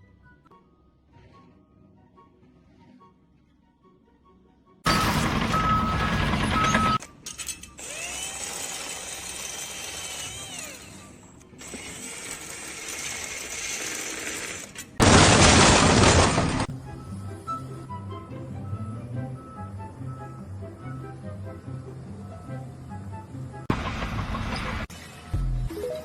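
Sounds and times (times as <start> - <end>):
background music: 0.0 - 4.9, 16.7 - 23.7, 25.3 - 26.0
small motor whining: 7.8 - 15.0.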